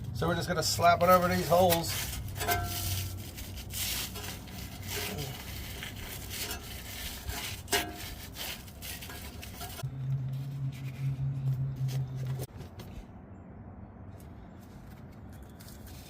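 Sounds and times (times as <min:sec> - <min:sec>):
hands rubbing and scraping: 0:01.1 - 0:12.5.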